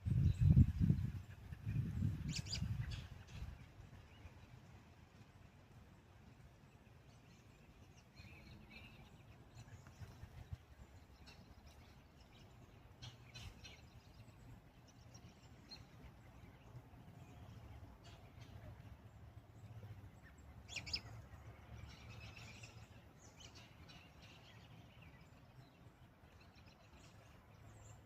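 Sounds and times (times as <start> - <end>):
low steady rumble: 0.0 - 28.0
distant bird chirps: 6.5 - 28.0.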